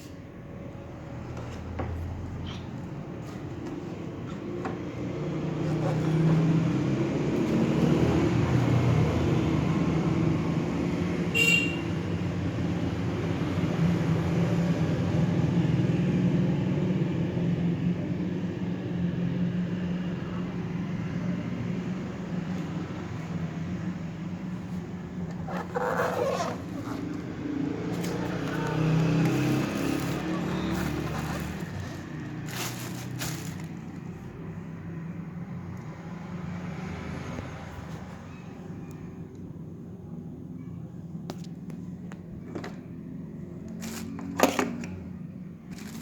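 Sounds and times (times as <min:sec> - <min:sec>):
motor vehicle rumble: 0:17.3 - 0:38.4.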